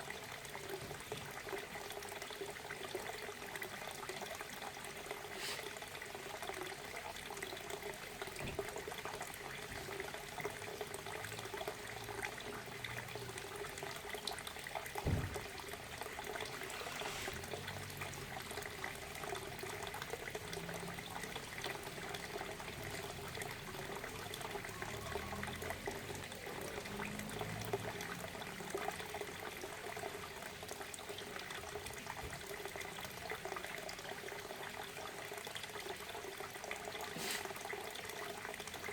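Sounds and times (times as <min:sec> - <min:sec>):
low thump: 0:15.0 - 0:15.6.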